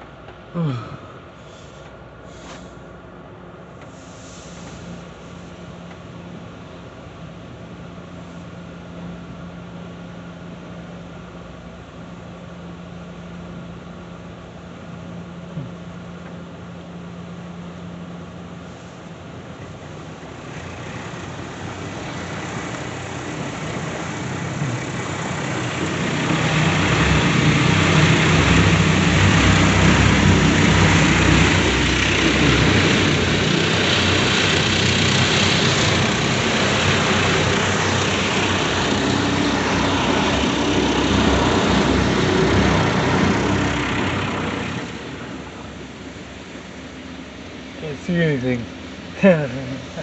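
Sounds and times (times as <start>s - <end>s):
deep rumble: 21.5s - 45.6s.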